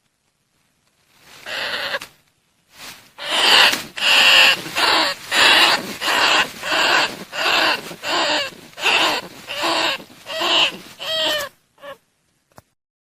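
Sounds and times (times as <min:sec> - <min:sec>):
rats squealing: 0:01.5 - 0:02.0, 0:03.2 - 0:12.0.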